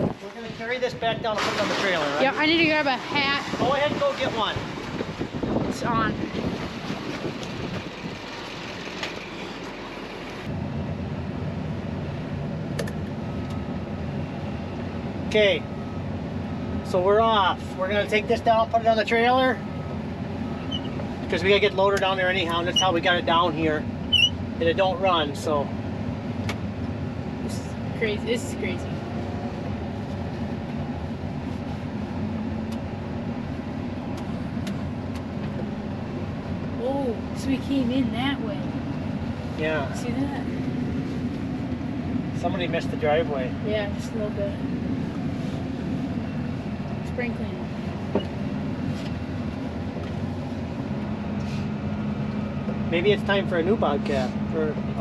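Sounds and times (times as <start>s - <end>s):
wind buffeting microphone: 0.0s - 1.4s, 2.3s - 9.0s
loader engine rumbling: 0.0s - 55.0s.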